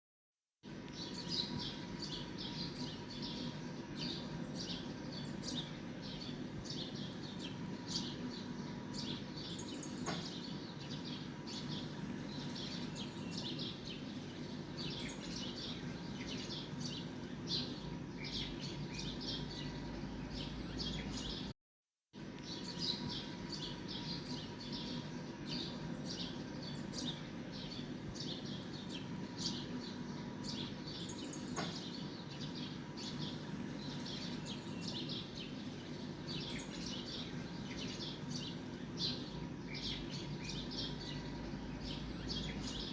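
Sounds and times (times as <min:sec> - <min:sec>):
small birds chirping: 0:00.6 - 0:21.5, 0:22.2 - 0:42.9
faint steady hum: 0:22.2 - 0:42.9.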